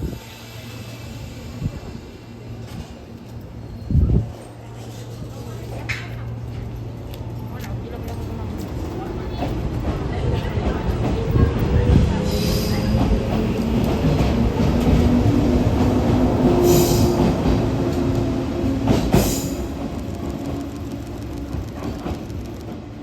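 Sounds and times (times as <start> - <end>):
wheel and track rumble: 2.5 - 23.0
electric train motors humming: 13.1 - 23.0.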